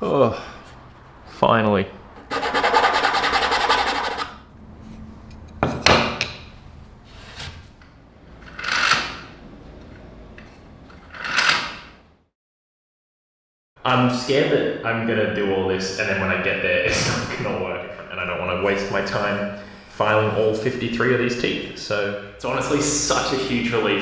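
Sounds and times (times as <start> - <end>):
wooden gears rubbing: 2.0 - 4.4.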